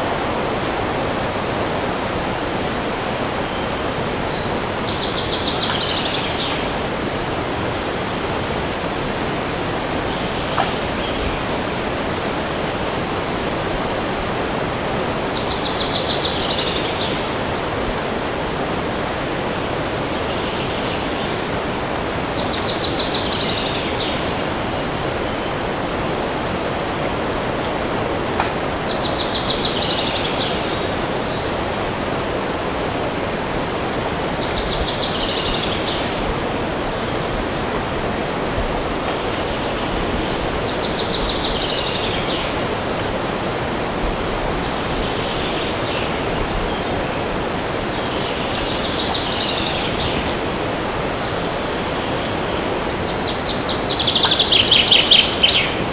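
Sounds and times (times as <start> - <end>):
wind rushing in forest: 0.0 - 55.9
songbird trilling: 53.0 - 55.8.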